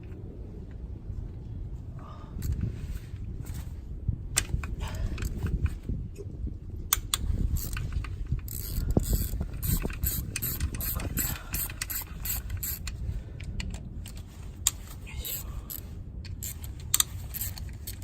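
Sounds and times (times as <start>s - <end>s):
ratchet wrench clicking: 6.9s - 18.0s.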